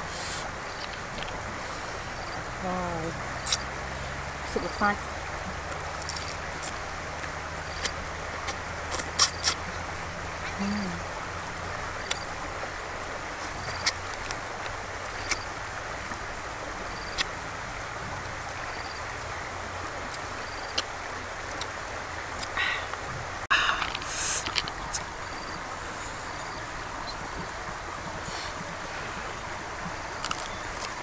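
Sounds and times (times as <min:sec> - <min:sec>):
steady background hiss: 0:00.0 - 0:31.0
chewing smacks and clicks: 0:05.7 - 0:09.6.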